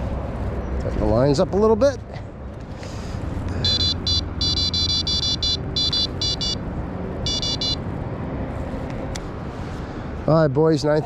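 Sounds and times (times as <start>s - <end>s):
bite alarm high-pitched beeps: 3.6s - 6.6s, 7.3s - 7.8s.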